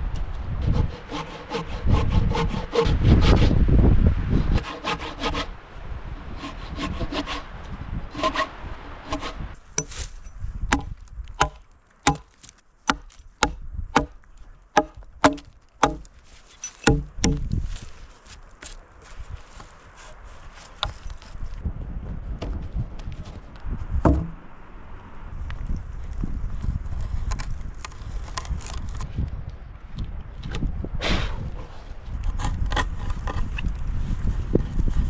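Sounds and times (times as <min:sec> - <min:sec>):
hand saw cutting wood: 0:00.6 - 0:03.5, 0:04.5 - 0:05.6, 0:06.2 - 0:07.5, 0:08.1 - 0:14.2, 0:14.8 - 0:17.4.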